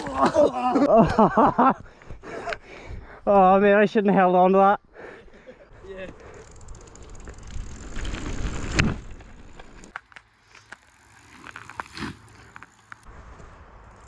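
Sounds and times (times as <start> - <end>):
bicycle rumbling and rattling: 6.1 - 14.0.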